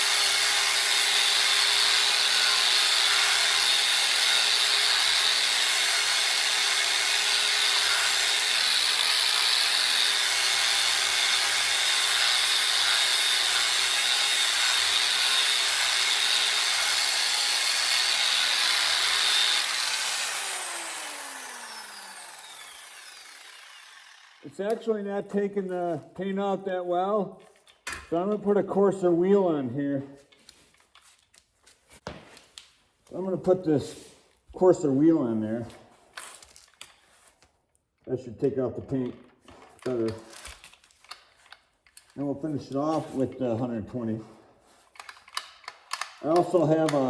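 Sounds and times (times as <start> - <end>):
electric grinder grinding paint: 0.0 - 24.8.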